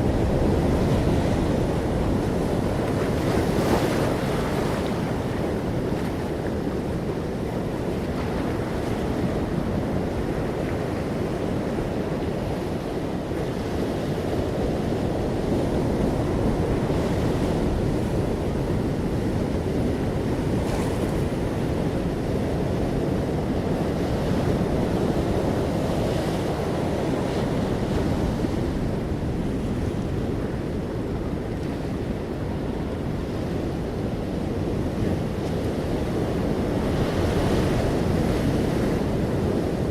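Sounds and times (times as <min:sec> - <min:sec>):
ocean waves washing on shore: 0:00.0 - 0:39.9.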